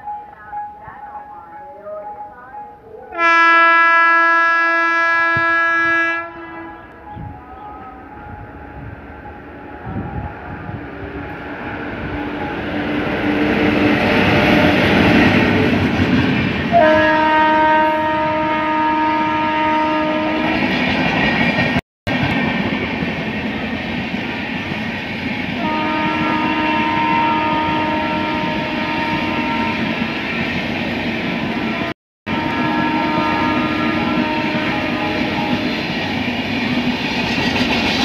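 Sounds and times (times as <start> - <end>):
locomotive horn blast: 3.1 - 9.0, 16.7 - 20.7, 25.6 - 30.0, 31.5 - 35.9
train rolling on rails: 5.0 - 38.0.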